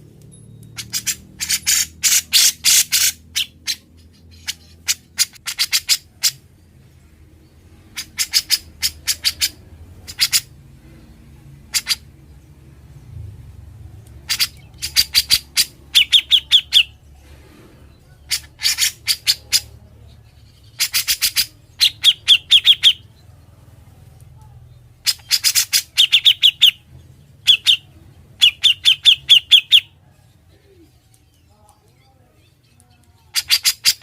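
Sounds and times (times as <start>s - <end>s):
bulbul singing in chattering bursts: 0.8s - 6.4s, 14.2s - 17.0s, 18.3s - 23.2s, 24.9s - 30.0s.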